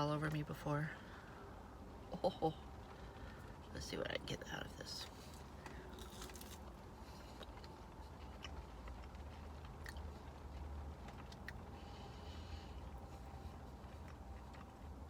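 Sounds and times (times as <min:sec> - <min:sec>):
low steady rumble: 0:00.0 - 0:15.0
person chewing food: 0:05.0 - 0:15.0.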